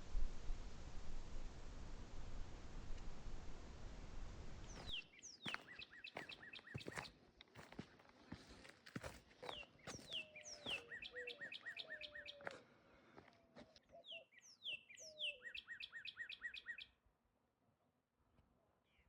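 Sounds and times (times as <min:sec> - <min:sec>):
songbird singing: 0:04.6 - 0:07.7, 0:08.3 - 0:17.0.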